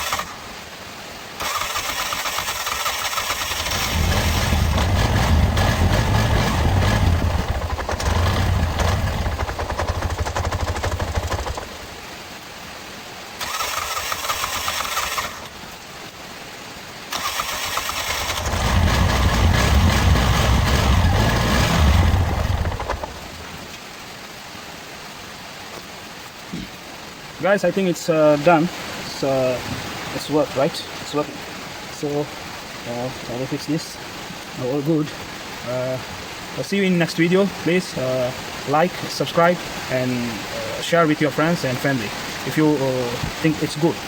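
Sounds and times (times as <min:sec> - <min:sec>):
auto-rickshaw engine running: 0:00.0 - 0:00.4, 0:01.4 - 0:12.0, 0:13.4 - 0:15.6, 0:17.1 - 0:23.7
starter motor whirring: 0:01.4 - 0:11.9, 0:13.4 - 0:15.6, 0:17.1 - 0:23.6.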